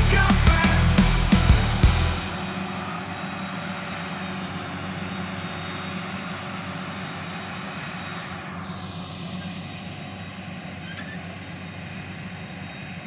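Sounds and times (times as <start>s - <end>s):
harvester engine and chopping drum: 0.0s - 4.0s
high machine whine: 0.0s - 6.0s.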